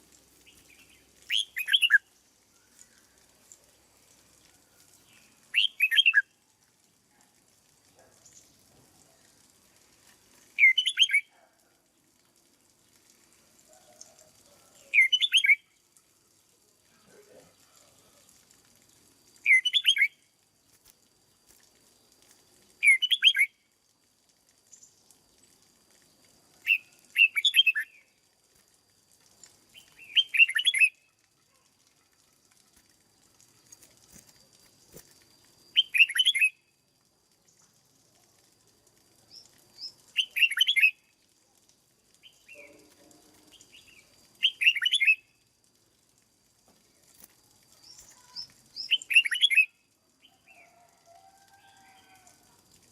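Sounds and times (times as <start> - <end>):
bird singing warbled phrases: 0.5 - 2.1, 5.1 - 6.3, 10.6 - 11.5, 14.8 - 15.7, 19.4 - 20.2, 22.8 - 23.6, 26.7 - 28.1, 29.8 - 31.2, 35.8 - 36.6, 39.3 - 41.0, 42.2 - 42.9, 43.5 - 45.3, 47.8 - 49.8.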